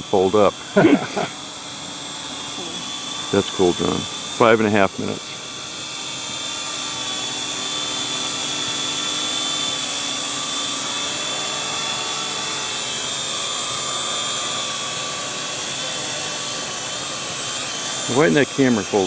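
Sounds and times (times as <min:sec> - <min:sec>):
drone propellers buzzing: 0:00.0 - 0:19.0.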